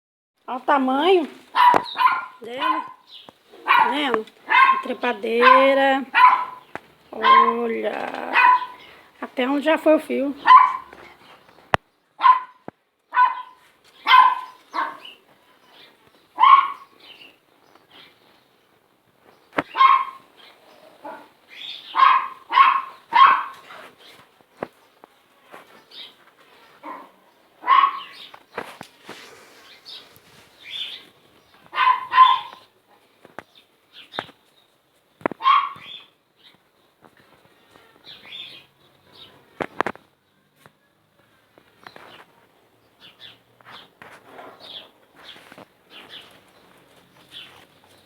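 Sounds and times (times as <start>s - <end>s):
dog barking: 1.5s - 7.6s, 8.3s - 8.8s, 10.4s - 11.0s, 12.2s - 15.1s, 16.4s - 16.9s, 19.7s - 20.3s, 21.0s - 21.3s, 21.9s - 23.8s, 26.8s - 28.2s, 31.7s - 32.7s, 35.4s - 35.9s.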